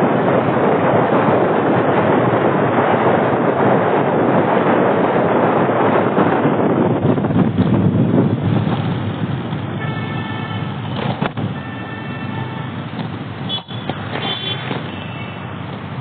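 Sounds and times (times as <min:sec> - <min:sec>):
road traffic noise: 0:00.0 - 0:16.0
vehicle horns: 0:09.7 - 0:15.5.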